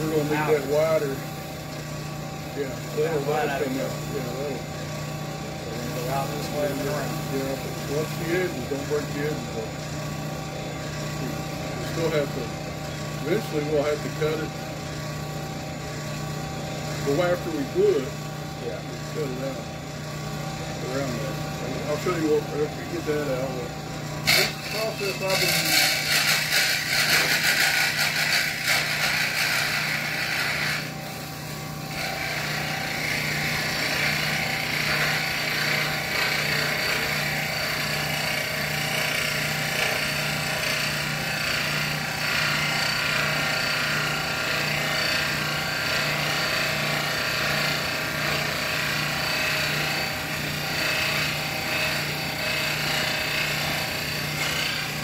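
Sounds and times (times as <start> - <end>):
small power tool running: 0.0 - 55.0.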